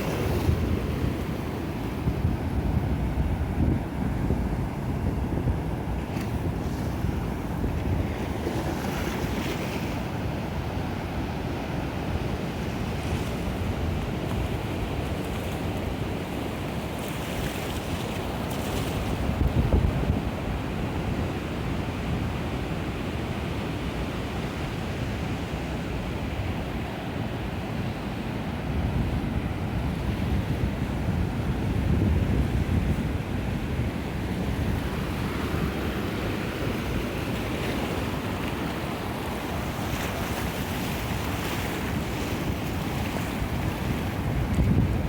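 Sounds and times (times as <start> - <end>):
wind rumbling on microphone: 0.0 - 22.4, 28.6 - 45.0
ocean surf breaking on beach: 0.0 - 45.0.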